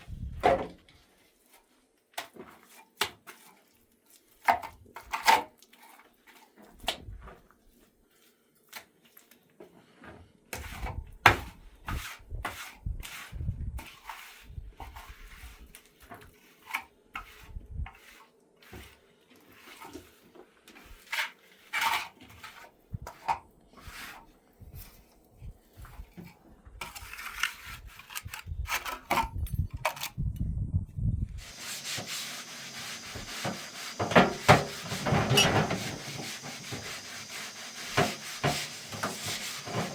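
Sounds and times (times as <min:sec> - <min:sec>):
steady rasping rub: 0:31.4 - 0:39.9
hard objects knocking and clattering: 0:33.0 - 0:37.0.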